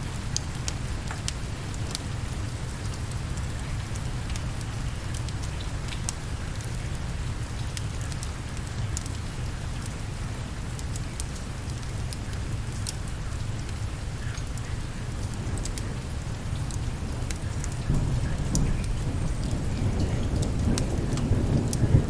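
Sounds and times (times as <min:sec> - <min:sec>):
steady rain: 0:00.0 - 0:22.0
sharp ticks and crackles: 0:16.6 - 0:22.0.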